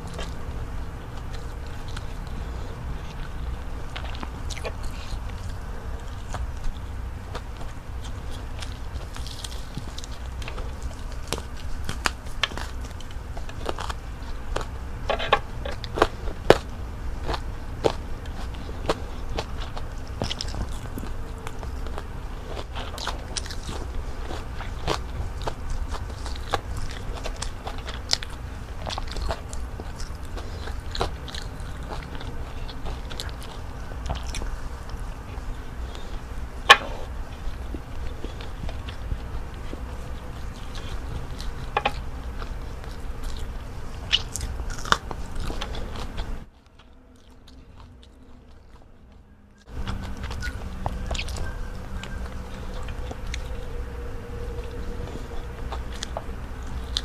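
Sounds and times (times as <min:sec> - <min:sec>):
crunchy biting and chewing: 0:00.0 - 0:57.0
faint low hum: 0:00.0 - 0:57.0.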